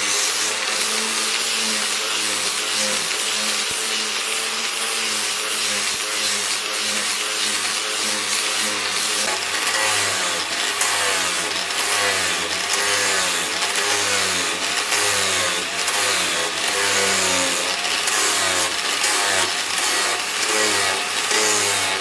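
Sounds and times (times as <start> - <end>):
loud steady hiss: 0.0 - 9.7
motor running with varying pitch: 0.0 - 22.0.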